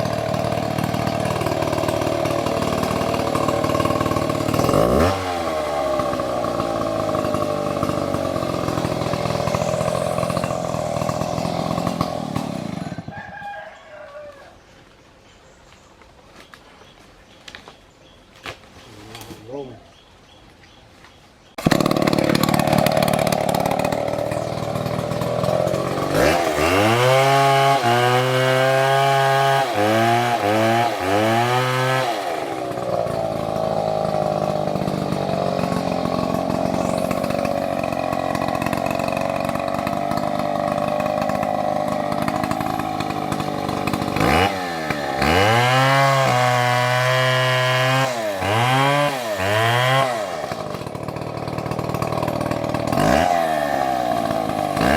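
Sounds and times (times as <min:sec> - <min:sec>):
chainsaw running and revving: 0:00.0 - 0:14.3, 0:21.6 - 0:54.9.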